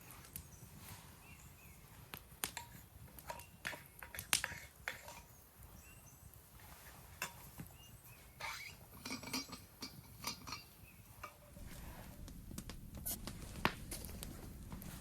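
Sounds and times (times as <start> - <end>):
cookware clinking and knocking: 9.0 - 10.6.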